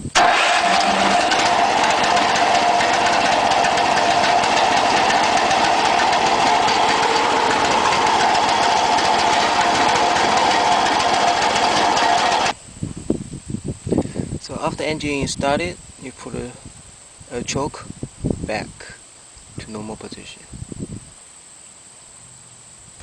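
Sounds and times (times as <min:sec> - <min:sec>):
gasoline engine starting and running: 0:00.0 - 0:12.6.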